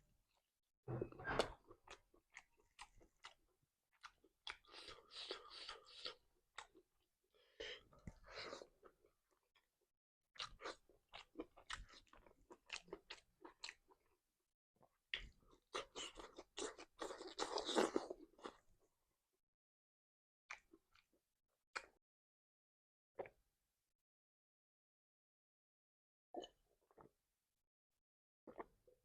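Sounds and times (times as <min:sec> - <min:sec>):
crunching and chewing: 0:15.2 - 0:18.6.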